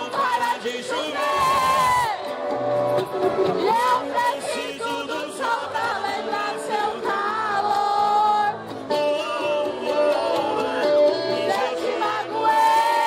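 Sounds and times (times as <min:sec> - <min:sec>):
men singing: 0:00.0 - 0:02.1, 0:03.6 - 0:13.0
live band playing: 0:00.0 - 0:13.0.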